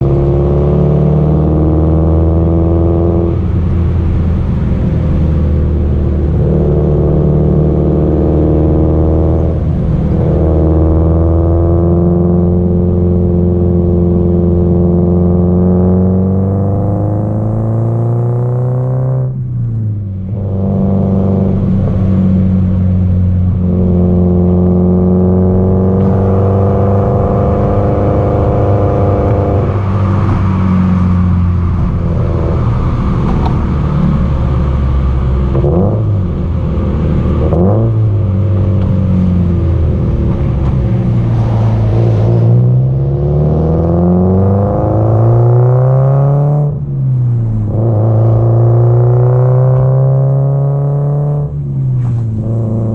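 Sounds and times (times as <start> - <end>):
car exhaust at speed: 0.0 - 52.9
revs changing at gear changes: 20.2 - 52.9.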